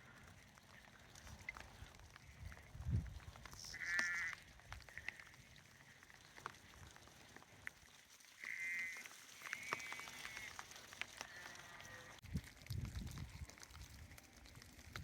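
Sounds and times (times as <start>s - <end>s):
light ticks: 0.1s - 15.0s
sheep bleating: 3.5s - 5.4s, 8.4s - 10.6s, 11.2s - 12.2s.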